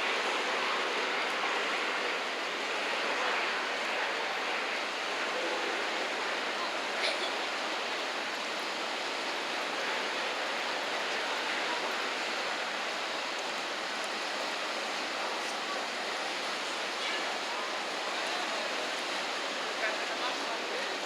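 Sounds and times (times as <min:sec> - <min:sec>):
river rushing: 0:00.0 - 0:21.0.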